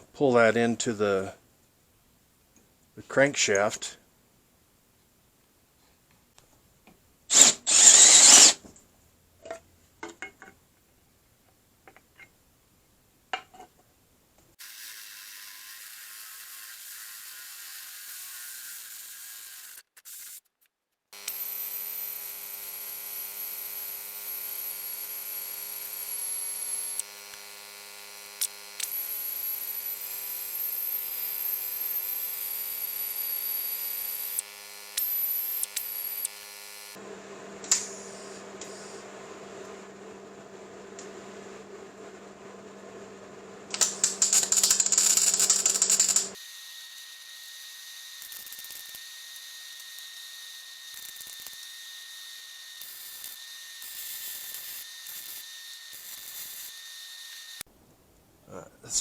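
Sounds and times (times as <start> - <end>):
electric drill whining: 7.3 - 8.6, 21.2 - 37.0, 43.7 - 57.6.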